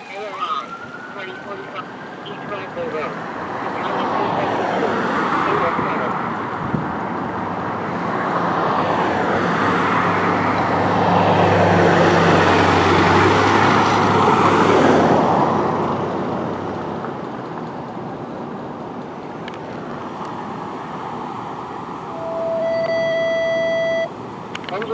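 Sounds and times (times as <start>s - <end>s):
fire truck diesel engine: 0.0s - 4.5s
road noise: 0.0s - 24.9s.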